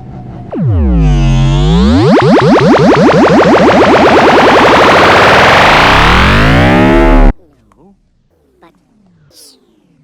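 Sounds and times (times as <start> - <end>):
distorted electronic pitch sweep: 0.0 - 7.3.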